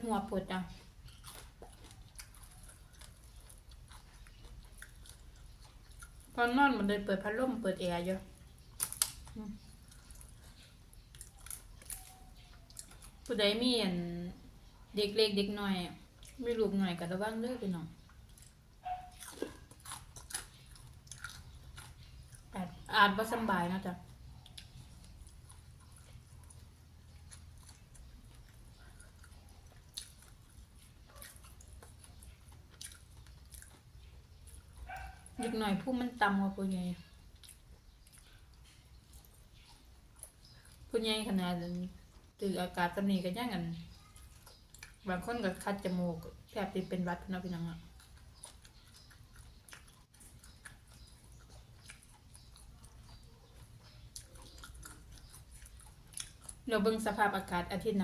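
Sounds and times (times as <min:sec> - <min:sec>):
person chewing food: 0:00.7 - 0:06.5, 0:08.2 - 0:13.4, 0:16.0 - 0:17.2, 0:17.9 - 0:35.5, 0:37.0 - 0:40.9, 0:41.6 - 0:42.4, 0:43.9 - 0:46.9, 0:47.8 - 0:57.6
soft crunchy clicks: 0:08.2 - 0:13.4, 0:23.8 - 0:35.5, 0:43.9 - 0:46.4, 0:47.3 - 0:57.2.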